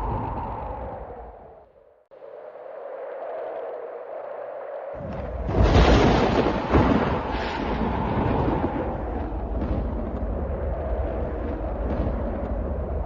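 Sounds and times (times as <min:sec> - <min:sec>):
snowstorm wind howling: 0:00.0 - 0:13.0
thunder cracking and rumbling: 0:05.0 - 0:13.0.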